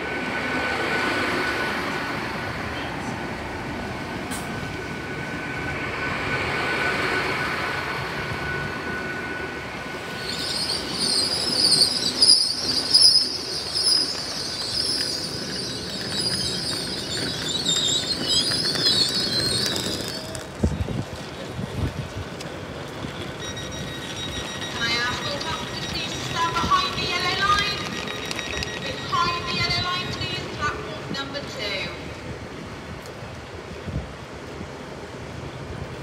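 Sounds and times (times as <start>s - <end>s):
train running rumble: 0.0s - 31.3s
high-pitched train squeal: 5.8s - 20.4s, 23.2s - 30.4s.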